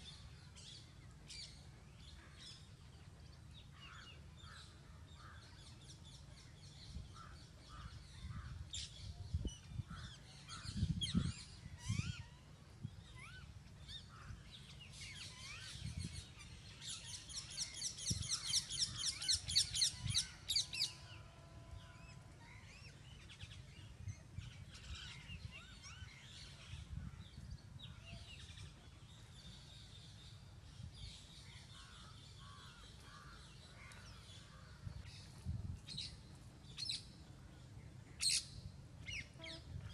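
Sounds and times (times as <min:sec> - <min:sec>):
birds chirping and calling: 0:00.0 - 0:21.1, 0:21.9 - 0:39.9.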